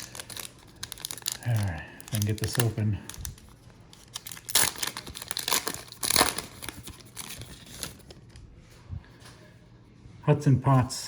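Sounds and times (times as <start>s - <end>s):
plastic wrapper crinkling and tearing: 0.0s - 8.5s.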